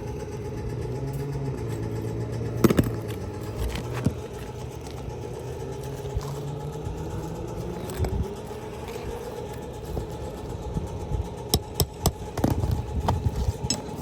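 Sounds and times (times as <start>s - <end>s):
engine-like drone: 0.0s - 14.0s.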